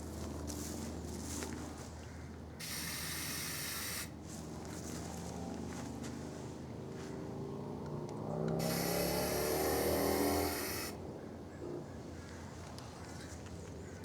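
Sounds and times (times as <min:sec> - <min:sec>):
spray paint can hissing: 0:02.6 - 0:04.1, 0:08.6 - 0:11.0.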